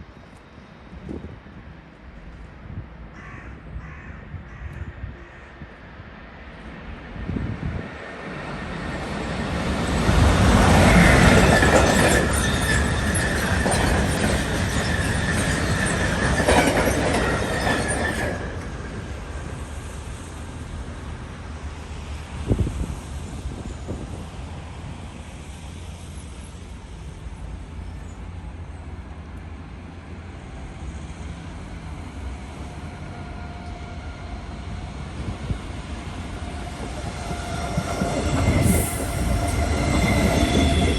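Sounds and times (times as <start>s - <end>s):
train approaching: 5.6s - 40.9s
train wheels rushing on rails: 6.5s - 29.5s, 30.2s - 40.9s.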